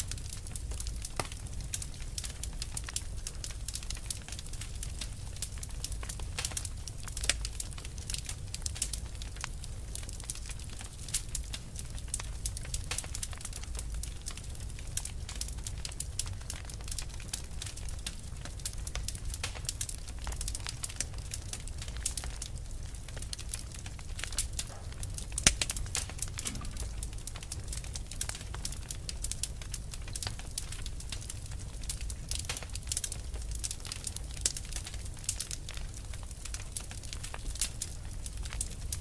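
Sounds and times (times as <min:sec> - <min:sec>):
fire crackling and popping: 0:00.0 - 0:39.0
steady low rumble: 0:22.6 - 0:28.8.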